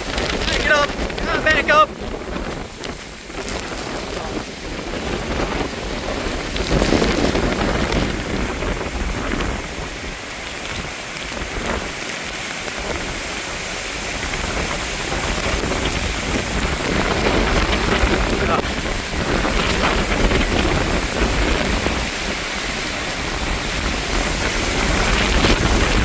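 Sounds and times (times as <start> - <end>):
heavy rain pouring: 0.0 - 26.0
strong wind: 0.0 - 26.0.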